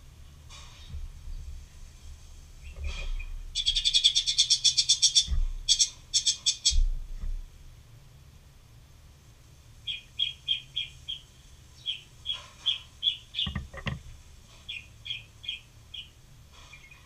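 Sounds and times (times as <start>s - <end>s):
small bird chirping: 2.6s - 6.9s, 9.8s - 17.0s
sharp knocks: 13.4s - 14.1s.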